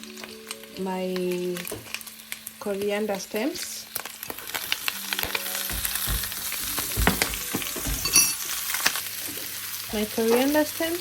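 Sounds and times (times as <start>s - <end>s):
food sizzling in hot oil: 0.0s - 11.0s
ringing metal clink: 8.0s - 8.4s.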